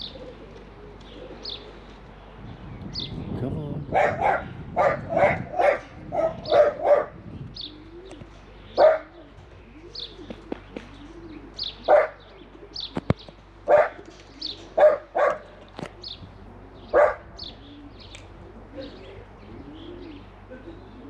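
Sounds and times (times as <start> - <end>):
pigeons cooing: 0.0 - 21.0
small birds chirping: 0.0 - 21.0
dog barking: 4.0 - 7.2, 8.8 - 9.1, 11.9 - 12.2, 13.7 - 14.0, 14.8 - 15.5, 16.9 - 17.2.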